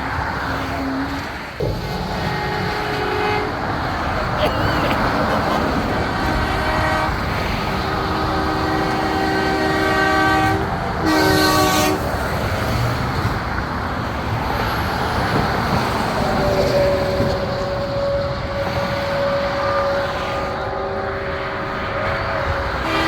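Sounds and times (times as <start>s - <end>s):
truck engine and road noise: 0.0s - 23.0s
truck air horn chord: 1.8s - 3.8s, 4.4s - 12.0s, 17.9s - 23.0s.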